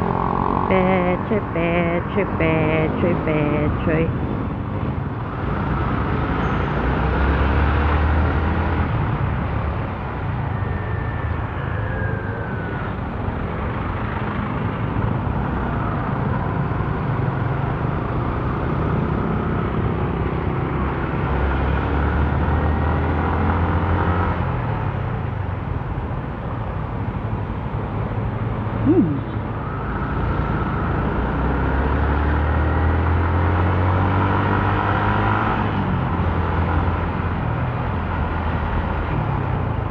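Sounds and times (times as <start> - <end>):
road noise: 0.0 - 39.9.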